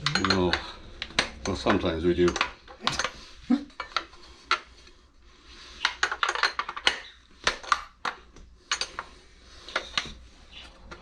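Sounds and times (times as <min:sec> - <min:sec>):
wrench and metal parts clinking: 0:00.0 - 0:03.2.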